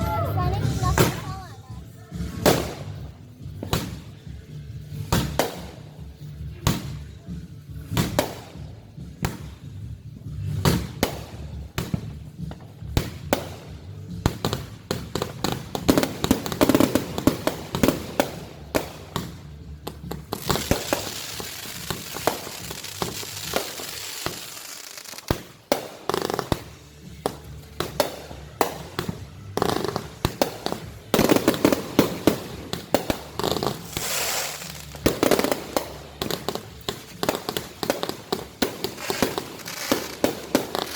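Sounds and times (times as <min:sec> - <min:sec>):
fireworks bangs and pops: 0:00.1 - 0:40.9
fireworks crackling hiss: 0:13.0 - 0:40.9.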